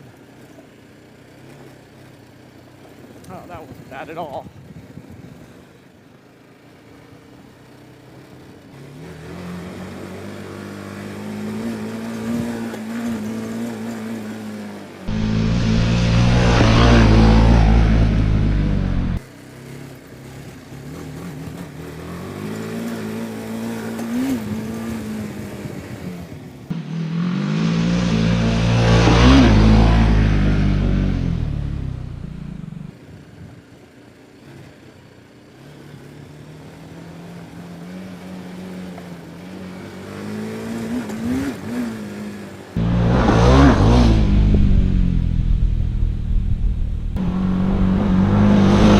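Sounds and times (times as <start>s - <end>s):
motorcycle engine revving: 8.8s - 19.2s, 20.2s - 33.0s, 35.6s - 48.9s.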